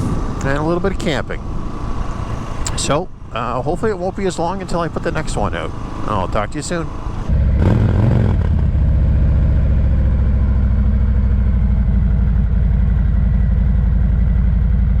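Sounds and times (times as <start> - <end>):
motorcycle engine idling: 8.7 - 15.0.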